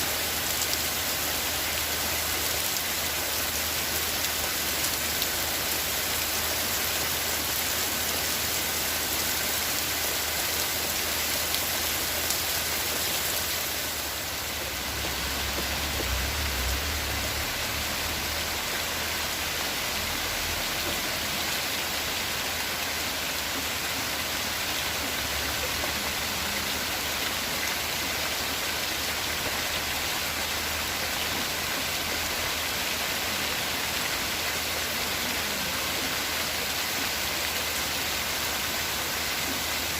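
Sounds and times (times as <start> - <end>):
steady rain: 0.0 - 39.9
low rumble: 14.4 - 20.7.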